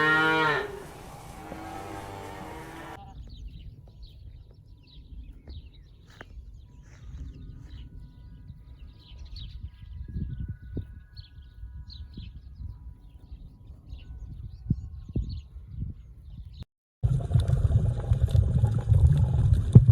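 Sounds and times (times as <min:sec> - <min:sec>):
cow mooing: 0:00.0 - 0:03.0
low wind-like rumble: 0:00.6 - 0:16.6.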